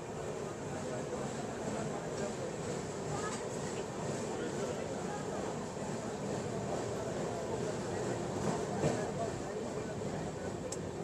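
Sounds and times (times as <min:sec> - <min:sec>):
train wheels running on rails: 0:00.0 - 0:11.0.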